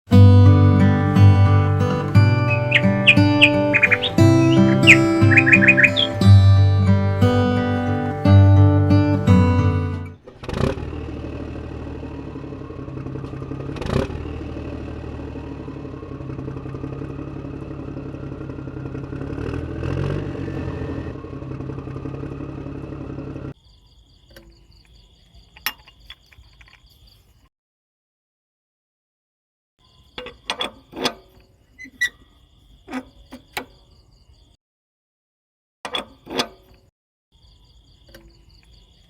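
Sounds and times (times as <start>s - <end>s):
faint ticking clicks: 2.5s - 6.2s
small toy engine clattering: 24.3s - 27.1s.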